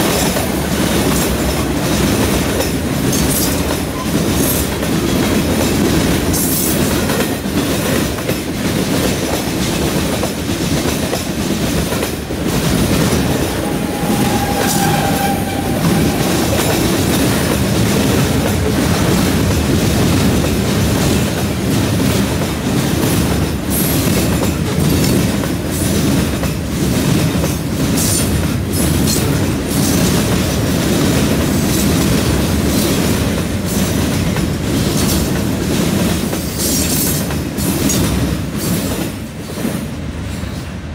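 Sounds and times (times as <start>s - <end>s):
freight train rumbling past: 0.0s - 40.9s
wheel squeal: 13.6s - 16.5s.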